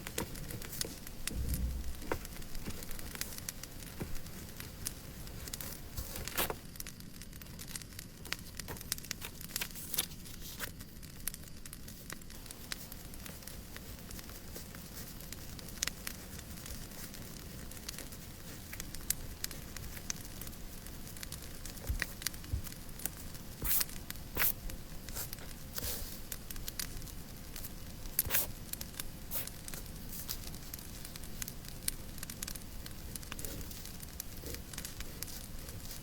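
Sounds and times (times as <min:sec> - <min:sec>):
fireplace crackling and popping: 0:00.0 - 0:36.0
soft hiss: 0:00.0 - 0:36.0.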